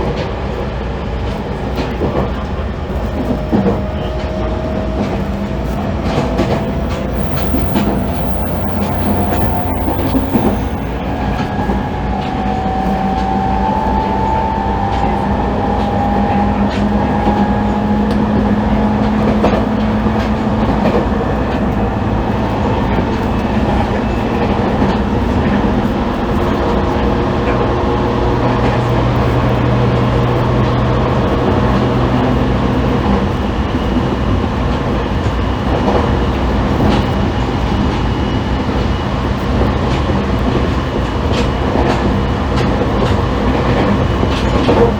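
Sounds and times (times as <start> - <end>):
traction motor tones: 6.4 - 11.2.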